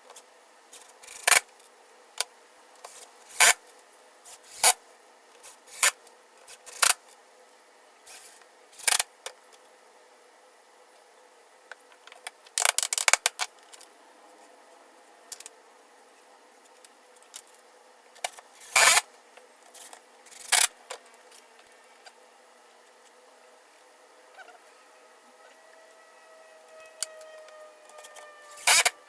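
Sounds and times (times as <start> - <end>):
faint squeak: 24.3 - 29.0.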